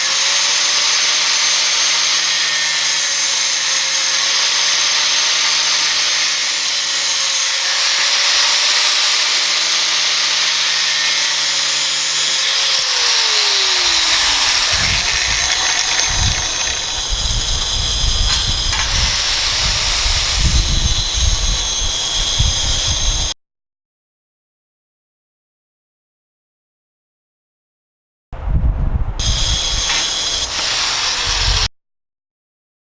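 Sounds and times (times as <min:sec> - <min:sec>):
angle grinder cutting metal: 0:00.0 - 0:23.4, 0:29.2 - 0:31.7
low rumbling: 0:13.0 - 0:21.8.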